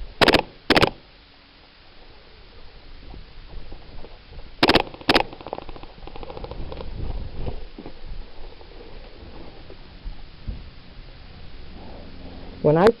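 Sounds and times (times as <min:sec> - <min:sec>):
airsoft gun firing bursts: 0:00.2 - 0:01.0, 0:04.6 - 0:05.7
rustling and knocking of movement: 0:03.0 - 0:10.8.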